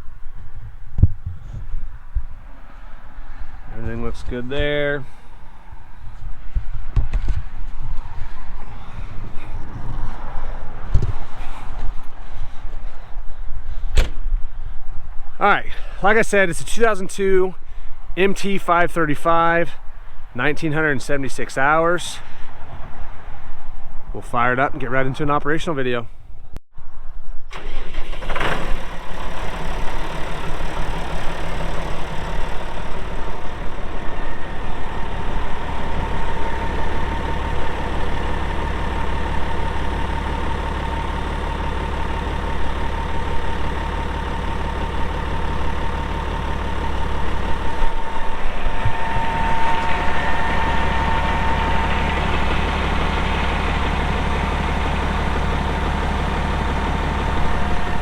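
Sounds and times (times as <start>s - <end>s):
tractor diesel engine idling: 1.9s - 6.7s, 27.5s - 58.0s.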